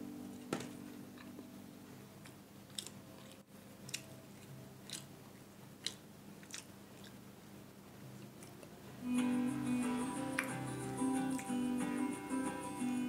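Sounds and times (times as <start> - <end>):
person chewing crunchy food: 2.2 - 7.3.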